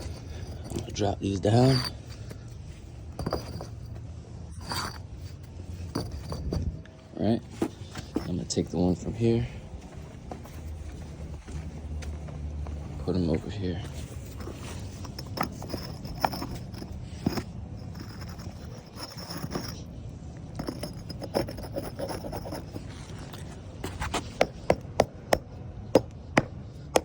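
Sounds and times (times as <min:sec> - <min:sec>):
concrete pavers knocking and scraping: 0:00.0 - 0:27.0
sharp taps on pavers: 0:23.8 - 0:27.0.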